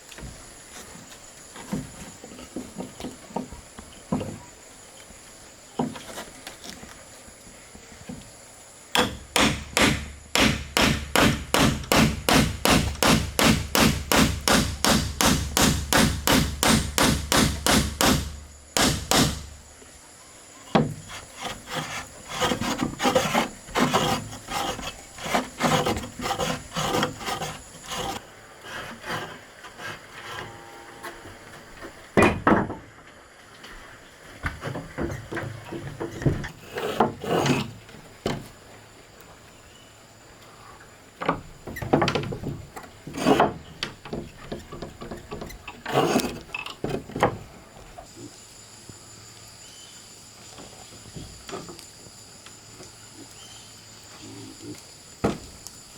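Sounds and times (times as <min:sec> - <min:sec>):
rubbing and scraping wood: 0:05.8 - 0:07.0, 0:20.7 - 0:30.7, 0:34.5 - 0:37.9, 0:41.7 - 0:47.5
sharp strokes on wood: 0:09.0 - 0:19.6, 0:20.8 - 0:30.6, 0:36.6 - 0:37.7, 0:43.1 - 0:43.6, 0:45.8 - 0:46.4.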